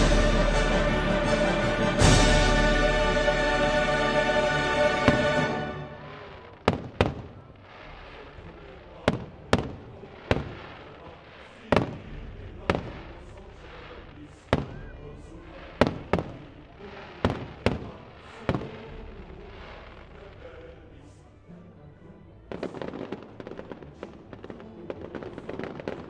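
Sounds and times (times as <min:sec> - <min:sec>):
firework shells bursting: 0:04.6 - 0:14.9, 0:15.5 - 0:20.6.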